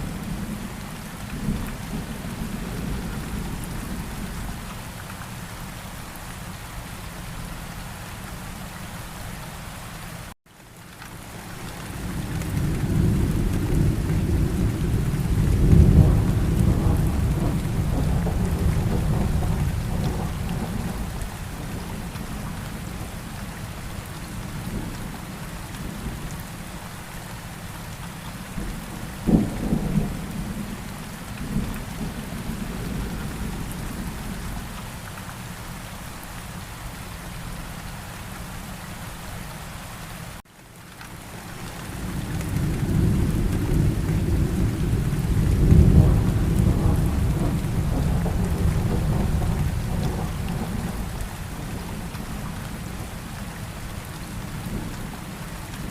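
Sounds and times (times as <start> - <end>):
steady rain: 0.0 - 55.9
thunder rumbling: 12.0 - 23.3, 28.5 - 34.7, 41.9 - 55.2
sharp thunderclap: 12.9 - 21.0, 42.5 - 51.7.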